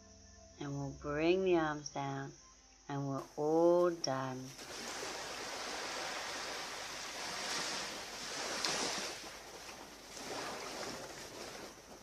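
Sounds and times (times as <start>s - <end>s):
surf washing onto beach: 4.5s - 12.0s.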